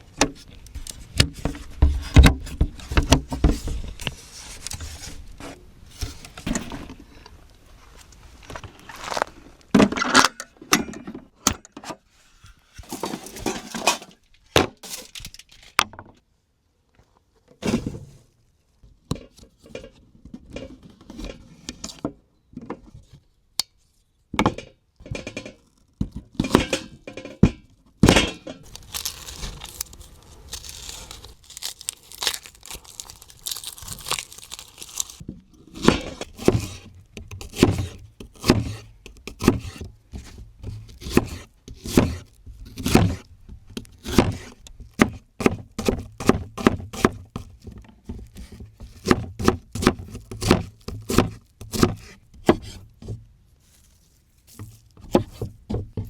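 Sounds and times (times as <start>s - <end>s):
crunchy tearing and crinkling: 8.4s - 9.7s, 28.6s - 35.2s
knife chopping on wooden board: 48.4s - 52.8s.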